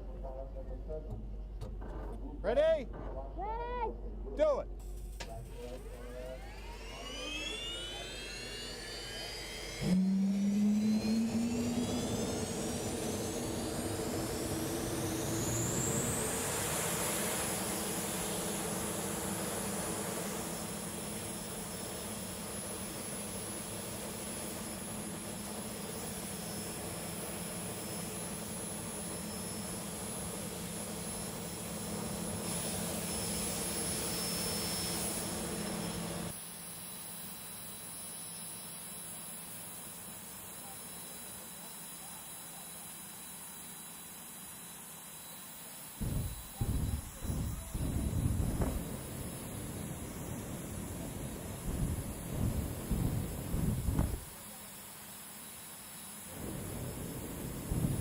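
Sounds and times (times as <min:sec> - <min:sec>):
turbine whine: 0:00.0 - 0:58.0
jet turbine engine roaring: 0:05.2 - 0:36.4, 0:44.6 - 0:54.6, 0:55.5 - 0:58.0.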